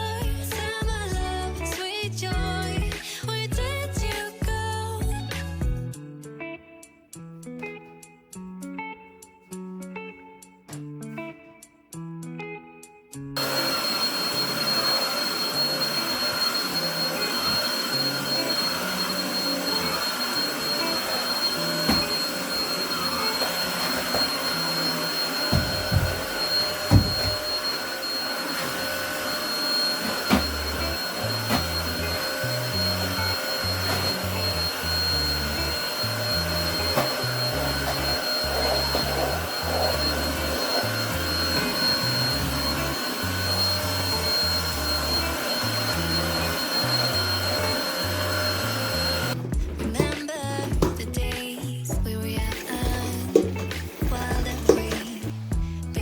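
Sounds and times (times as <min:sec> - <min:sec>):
vacuum cleaner running: 0:13.4 - 0:51.0, 0:52.1 - 0:55.4.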